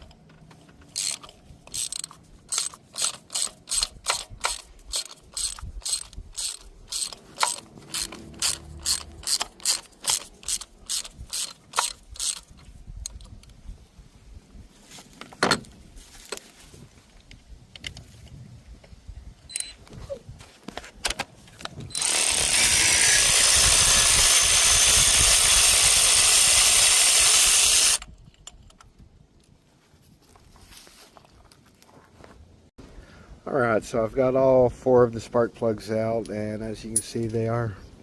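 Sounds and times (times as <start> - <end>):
hand ratchet clicking: 0.8 - 13.4, 21.9 - 28.8.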